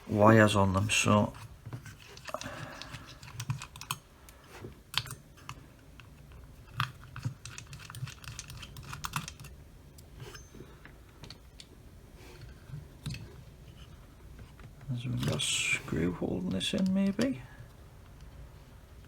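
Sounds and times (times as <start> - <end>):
small tools clicking and tapping: 1.4 - 11.7.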